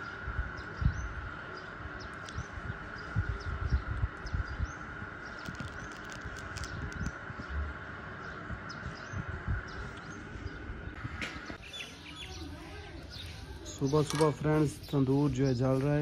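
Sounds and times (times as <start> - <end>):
steady high hum: 0.0 - 16.0
bird chirps: 11.6 - 15.6.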